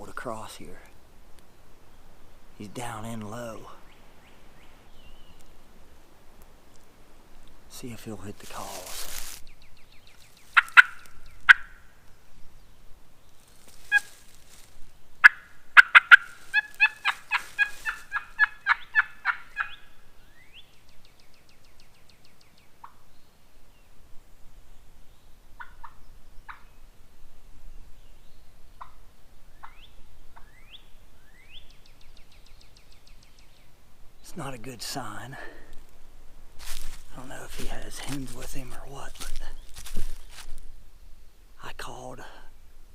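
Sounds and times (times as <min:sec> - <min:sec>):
small birds chirping: 0:00.0 - 0:05.8, 0:06.4 - 0:27.0, 0:27.6 - 0:40.8
turkey call clucks and yelps: 0:10.6 - 0:11.8, 0:13.8 - 0:14.2, 0:15.2 - 0:19.9.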